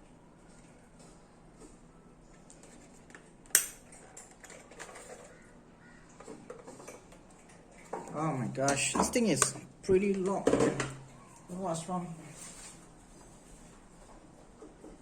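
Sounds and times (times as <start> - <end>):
plastic parts clicking and rattling: 3.9 - 5.4.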